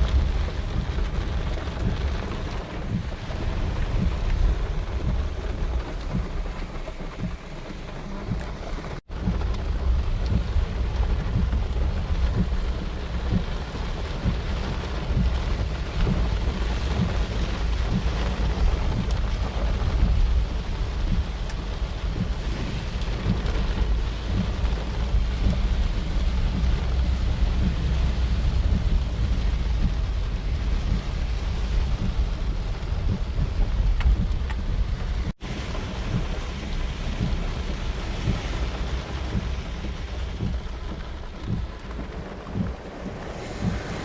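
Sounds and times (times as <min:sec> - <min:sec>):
deep rumble: 0:00.0 - 0:44.0
heavy rain pouring: 0:00.0 - 0:44.0.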